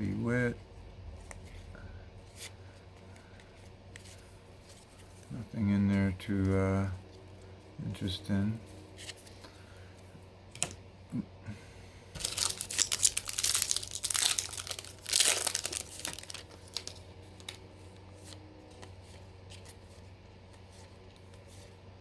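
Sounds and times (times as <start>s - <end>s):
cards rustling in hands: 1.1s - 10.8s, 12.2s - 22.0s
plastic wrapper tearing and crinkling: 12.2s - 17.6s.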